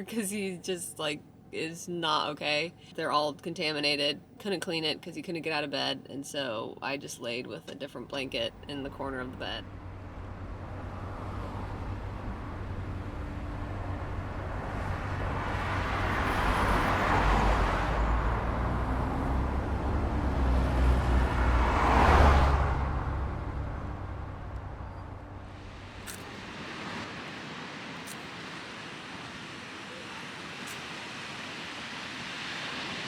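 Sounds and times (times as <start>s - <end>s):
traffic rumble: 0.0s - 33.0s
vehicles passing by: 8.1s - 33.0s.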